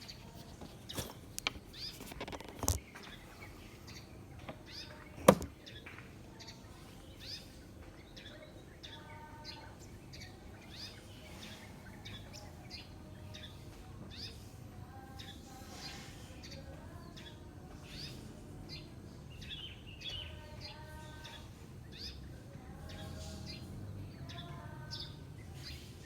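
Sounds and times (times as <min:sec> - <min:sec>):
small birds chirping: 0:00.0 - 0:26.0
sharp clicks or knocks: 0:05.2 - 0:05.6.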